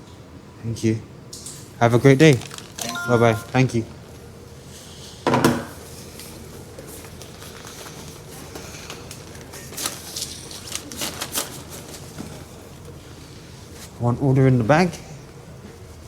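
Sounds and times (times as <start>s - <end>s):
packaging rustling and crinkling: 2.1s - 2.9s, 9.1s - 12.1s.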